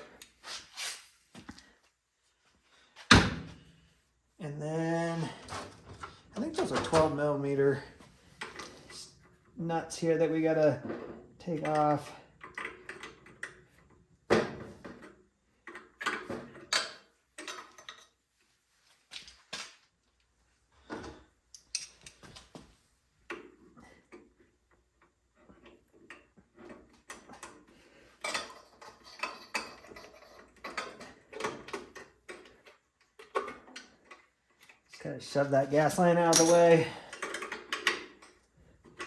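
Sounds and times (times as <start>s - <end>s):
wrench and metal parts clinking: 21.5s - 22.3s, 28.2s - 34.9s, 35.9s - 39.0s.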